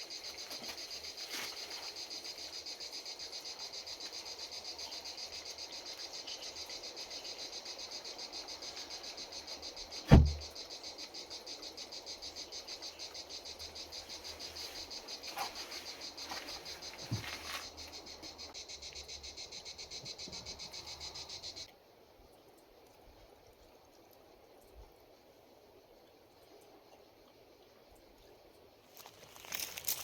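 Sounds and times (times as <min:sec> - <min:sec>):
insects chirping in a pulsing trill: 0:00.0 - 0:22.5, 0:24.4 - 0:30.0
loud dull thump: 0:10.1 - 0:10.5.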